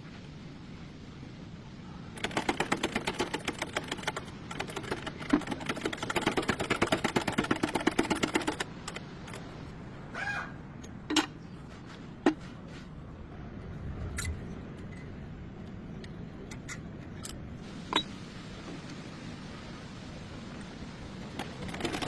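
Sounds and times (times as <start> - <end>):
hand tool rapid clicking: 2.2 - 9.5.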